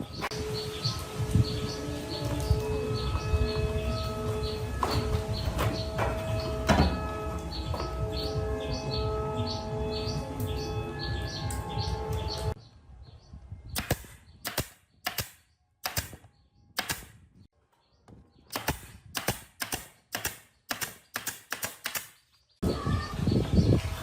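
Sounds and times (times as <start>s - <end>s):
sharp knocks: 4.8s - 8.0s.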